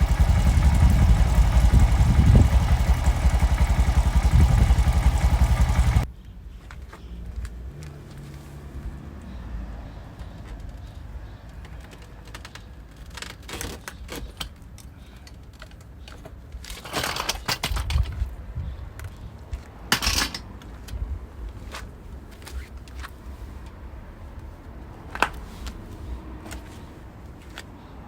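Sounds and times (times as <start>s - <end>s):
metal tools clinking and rattling: 16.7s - 18.2s, 19.9s - 20.5s.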